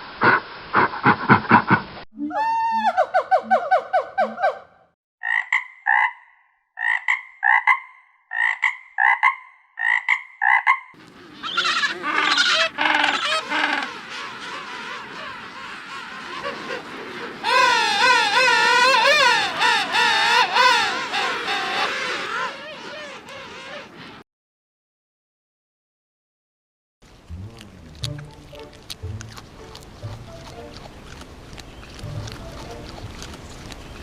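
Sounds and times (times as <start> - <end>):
frog croaking: 5.2 - 16.9
wavering frog calls: 5.2 - 24.2.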